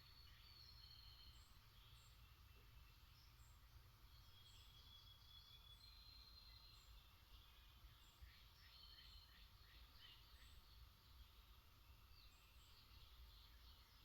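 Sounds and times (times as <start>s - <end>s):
faint songbirds whistling: 0.0s - 14.0s.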